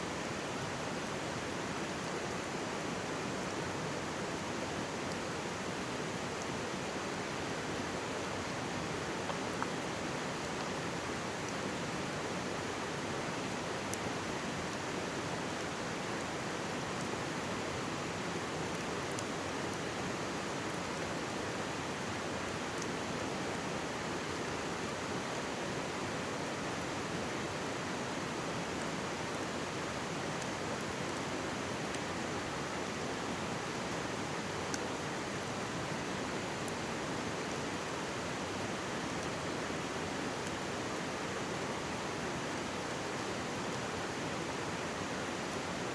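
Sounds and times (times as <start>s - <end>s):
mountain stream babbling: 0.1s - 45.9s
campfire crackles: 0.2s - 26.0s, 28.5s - 43.0s.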